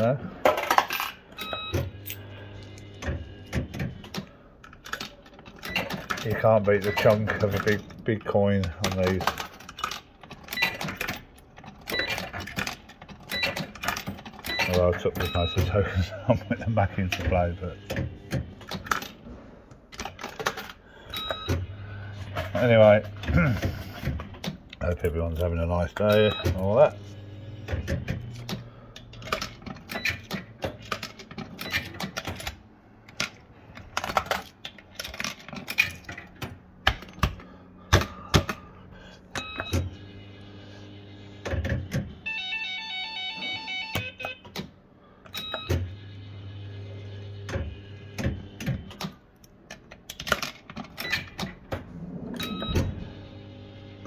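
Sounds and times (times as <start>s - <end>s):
coin and mechanism clicks: 0.0s - 19.2s, 19.9s - 21.7s, 22.3s - 26.9s, 27.7s - 37.4s, 41.4s - 45.9s, 48.6s - 51.7s.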